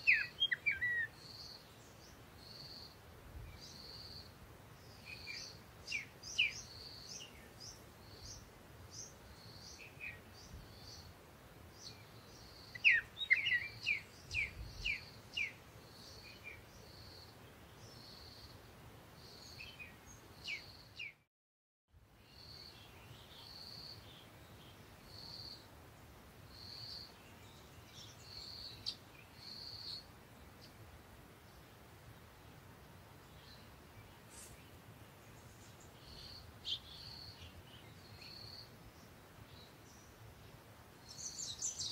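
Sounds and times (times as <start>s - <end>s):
birds chirping: 0.0s - 2.9s, 3.5s - 11.1s, 11.7s - 18.5s, 33.2s - 41.9s.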